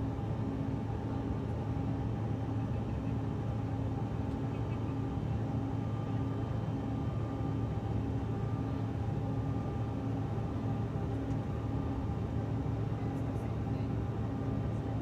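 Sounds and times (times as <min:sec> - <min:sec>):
airliner engine drone in cabin: 0:00.0 - 0:15.0.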